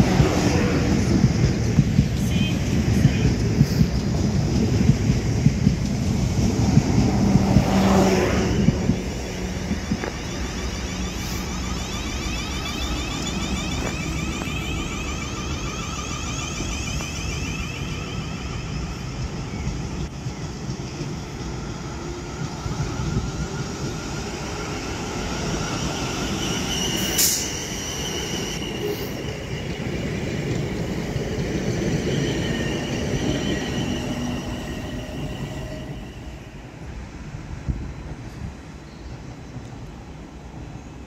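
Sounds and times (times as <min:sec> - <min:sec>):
train rumble: 0:00.0 - 0:41.0
high whining tones: 0:07.0 - 0:20.3, 0:21.1 - 0:36.8
high ringing squeal: 0:08.3 - 0:36.9.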